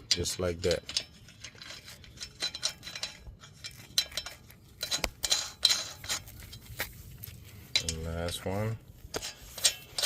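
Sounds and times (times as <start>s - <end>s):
lug nuts clinking on wheel studs: 0.0s - 6.8s, 7.7s - 10.0s.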